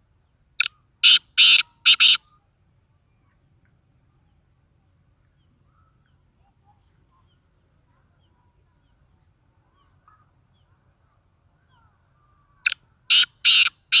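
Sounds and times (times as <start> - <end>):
francolin harsh grating call: 1.0 - 2.2, 13.1 - 14.0.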